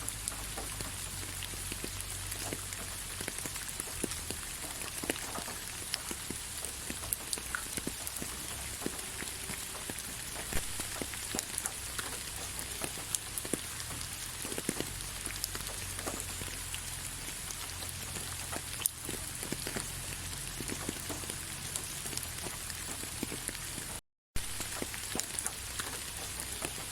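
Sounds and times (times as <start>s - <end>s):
steady rain falling: 0.0s - 26.9s.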